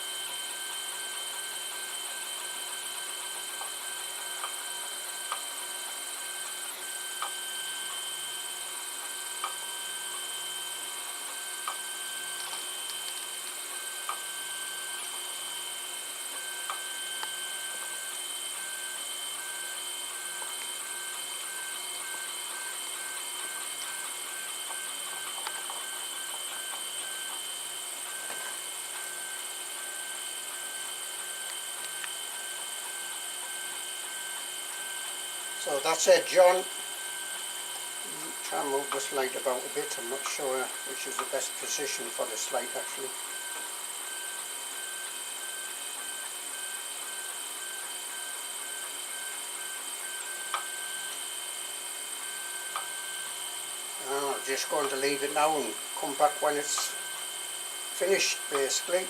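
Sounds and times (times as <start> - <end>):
printer motor hum and whine: 0.0 - 59.0.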